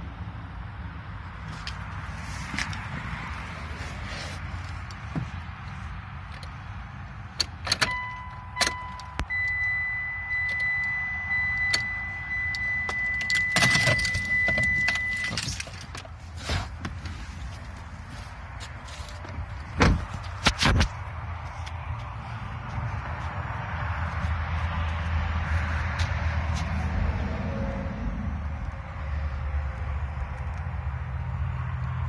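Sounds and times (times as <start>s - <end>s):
high electronic warning tone: 7.9s - 15.4s
car keys jangling: 11.6s - 16.2s.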